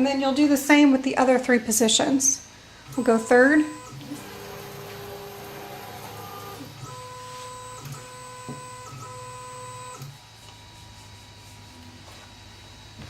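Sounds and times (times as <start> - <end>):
stepper motors whining: 2.9 - 10.2.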